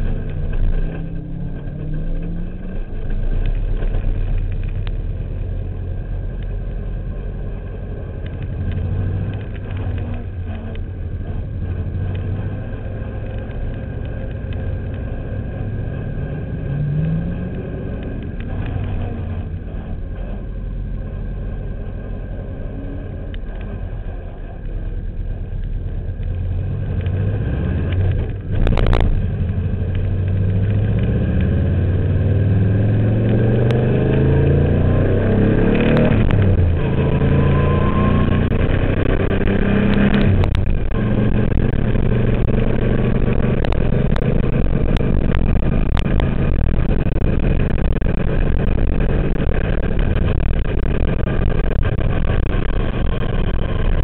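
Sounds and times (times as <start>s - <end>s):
gear change cuts: 0.0s - 54.0s
race car engine accelerating: 7.3s - 54.0s.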